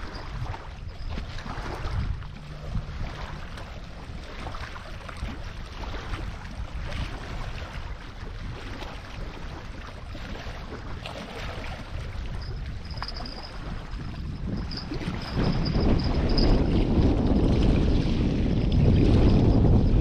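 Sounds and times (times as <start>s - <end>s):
small waves on rocky shore: 0.0s - 15.6s
wind rumbling on microphone: 0.0s - 20.0s.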